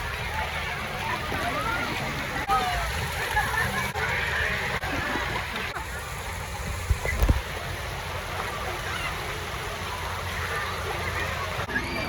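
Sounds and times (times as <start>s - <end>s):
water splashing: 0.0s - 12.0s.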